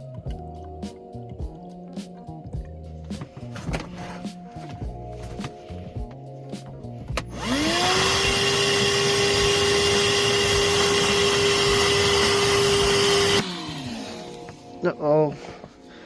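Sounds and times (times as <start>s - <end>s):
shop vacuum motor whine: 7.2s - 14.8s.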